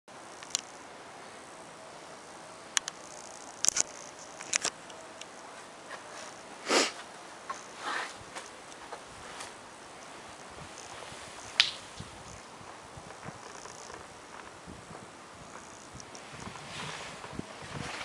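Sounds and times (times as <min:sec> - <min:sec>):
person sniffing: 0:06.6 - 0:07.0.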